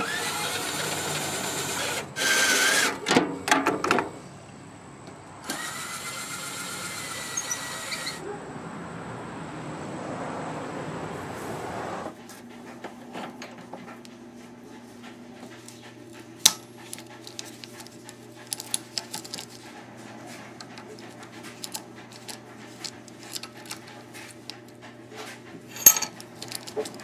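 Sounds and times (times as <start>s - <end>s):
metal parts clattering: 18.5s - 19.6s, 25.7s - 27.0s
metallic clinks of tools: 25.7s - 26.7s.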